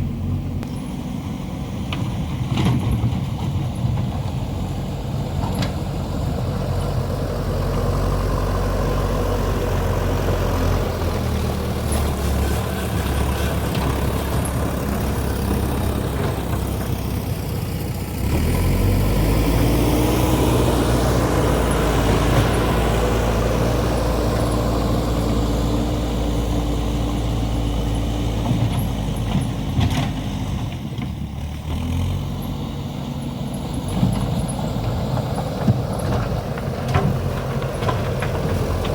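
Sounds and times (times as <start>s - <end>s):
diesel engine revving: 0.0s - 38.9s.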